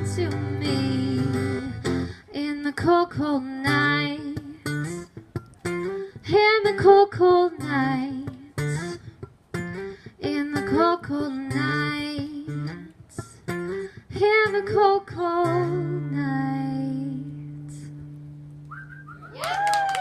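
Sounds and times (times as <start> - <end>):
acoustic guitar strumming: 0.0 - 2.2, 3.6 - 19.2
woman singing: 0.0 - 4.7, 6.2 - 8.8, 10.2 - 13.4, 14.1 - 18.0.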